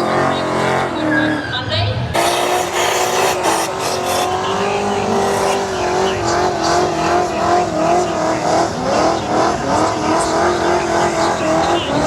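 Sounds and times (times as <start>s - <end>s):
car engine at high revs: 0.0s - 12.0s
tyre squeal: 0.2s - 7.3s.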